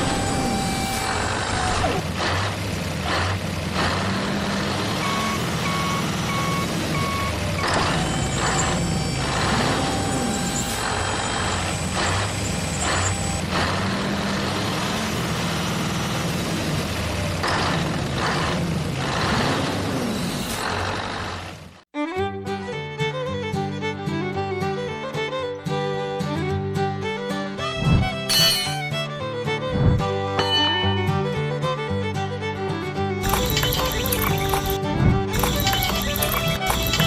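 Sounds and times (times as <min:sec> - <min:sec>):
truck engine: 0:00.0 - 0:21.8, 0:33.2 - 0:37.0
reversing alarm beeps: 0:05.0 - 0:10.7.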